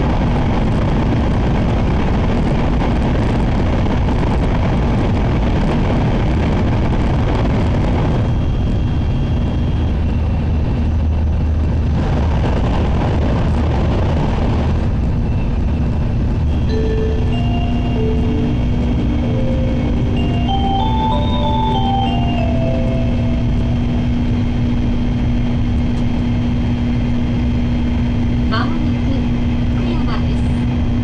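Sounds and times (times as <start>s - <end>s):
train cabin rumble: 9.7s - 31.0s.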